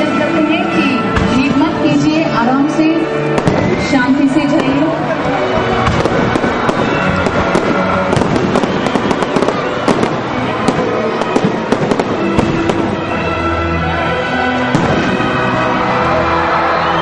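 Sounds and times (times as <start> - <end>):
fireworks cracks and bangs: 3.3 - 13.2, 14.6 - 16.6.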